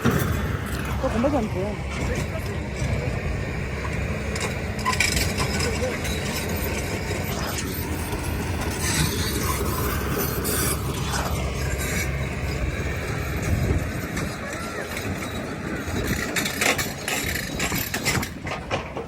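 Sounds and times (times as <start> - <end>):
motorbike engine and road rumble: 0.0 - 19.0
clattering rattles: 13.4 - 19.0.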